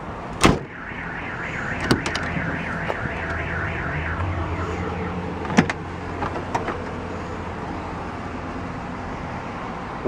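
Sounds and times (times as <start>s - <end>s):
fast warbling tone: 0.7s - 6.2s.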